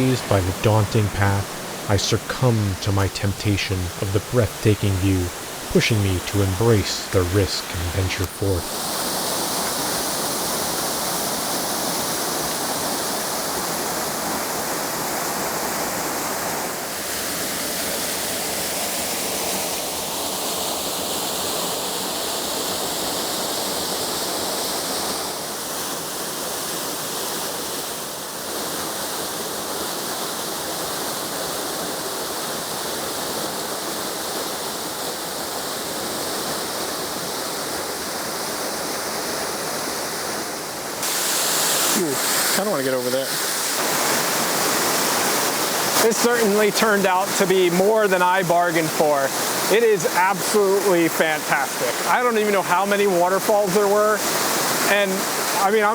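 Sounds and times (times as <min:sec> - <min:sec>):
waterfall rushing: 0:00.0 - 0:13.8, 0:40.6 - 0:55.9.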